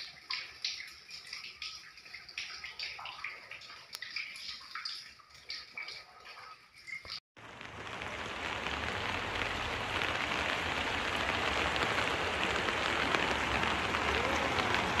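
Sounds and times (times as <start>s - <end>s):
heavy rain on wet ground: 7.4s - 15.0s.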